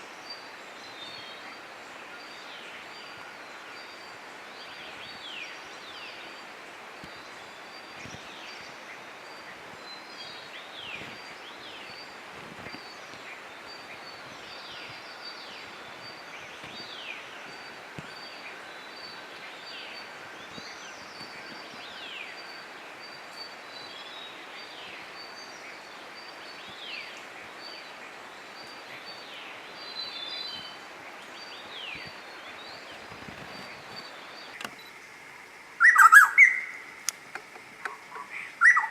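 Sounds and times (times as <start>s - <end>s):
background hiss: 0.0s - 38.9s
birds whistling downward: 35.8s - 36.8s, 37.9s - 38.9s.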